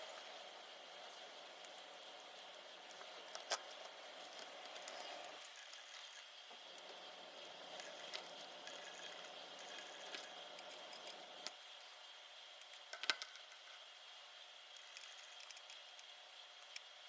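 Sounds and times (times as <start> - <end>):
small parts clicking and tapping: 1.5 - 6.9, 7.7 - 11.9, 12.6 - 13.8, 14.7 - 16.9.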